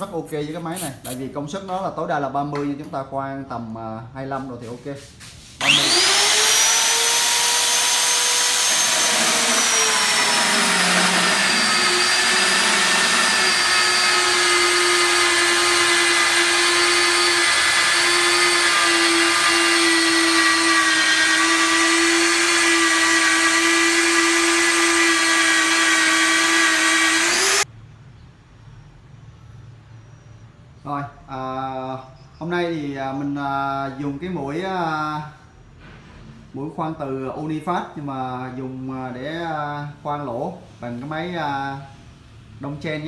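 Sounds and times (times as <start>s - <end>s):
magnetic drill motor whine: 5.6s - 27.6s.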